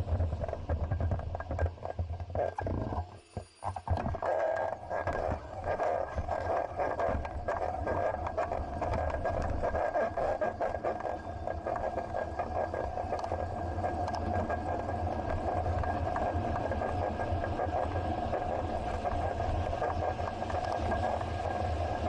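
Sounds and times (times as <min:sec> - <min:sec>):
bicycle riding hum and rumble: 0:00.0 - 0:22.0.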